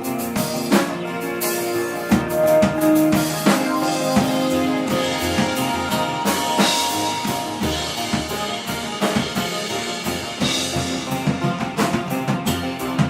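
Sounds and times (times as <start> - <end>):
bass guitar: 0.0 - 13.0
distorted guitar: 0.0 - 13.0
drum kit beat: 0.0 - 13.0
cymbal crashes: 3.8 - 11.0.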